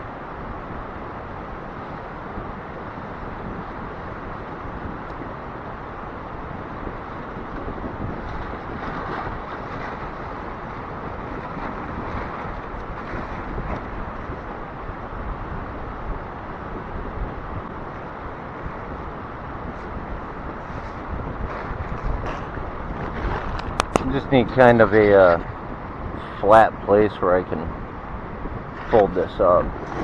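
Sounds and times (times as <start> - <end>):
steady outdoor rushing noise: 0.0 - 30.0.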